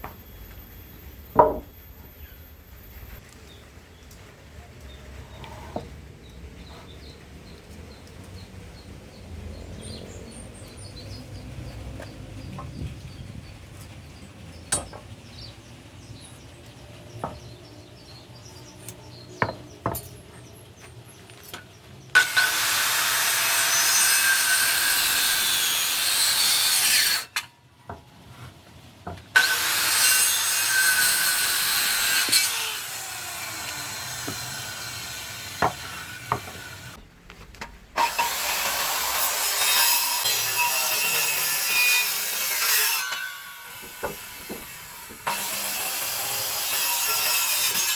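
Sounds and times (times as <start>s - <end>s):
power tool cutting wood: 22.1s - 27.4s, 29.4s - 37.0s, 38.0s - 47.9s.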